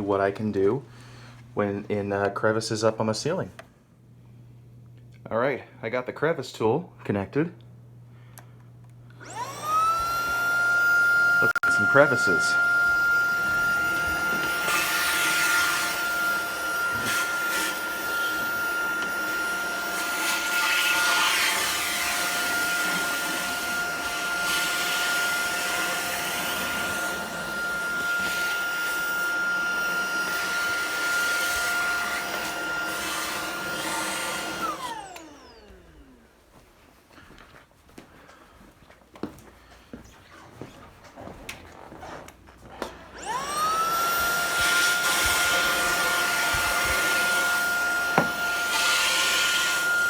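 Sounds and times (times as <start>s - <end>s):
vacuum cleaner motor whine: 9.1s - 36.3s, 42.8s - 50.0s.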